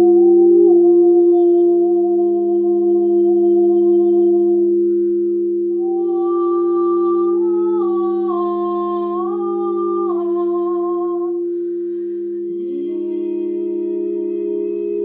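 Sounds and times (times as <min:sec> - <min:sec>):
singing bowls drone: 0:00.0 - 0:15.0
person humming: 0:05.8 - 0:11.6, 0:12.3 - 0:15.0.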